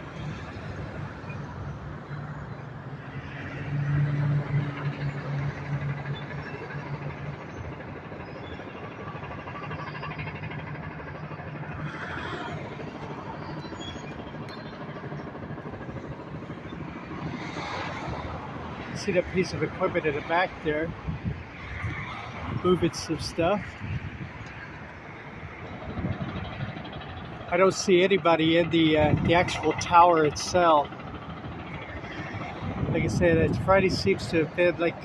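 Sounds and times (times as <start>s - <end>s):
low engine hum: 0.0s - 35.0s
traffic noise: 0.0s - 35.0s.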